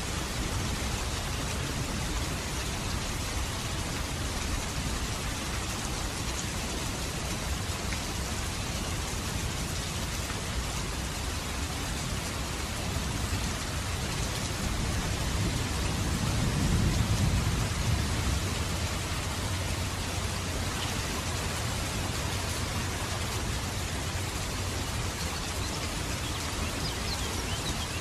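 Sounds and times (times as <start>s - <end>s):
steady rain falling: 0.0s - 28.0s
low rumble of thunder: 14.6s - 19.9s.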